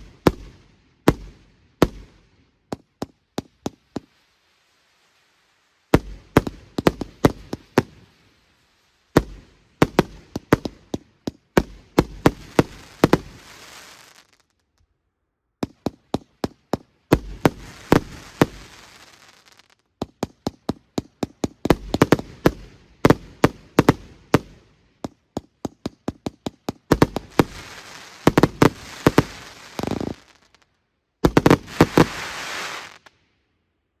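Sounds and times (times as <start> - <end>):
firework bangs: 0.0 - 4.2, 5.9 - 14.5, 15.6 - 33.2
firework crackling hiss: 3.4 - 10.6, 11.9 - 14.6, 17.1 - 19.8, 26.9 - 33.2.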